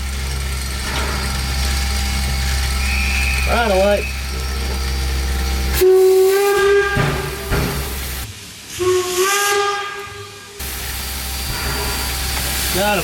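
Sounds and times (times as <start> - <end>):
steam locomotive whistle blasts: 2.8 - 4.6, 5.7 - 8.0, 8.7 - 13.0.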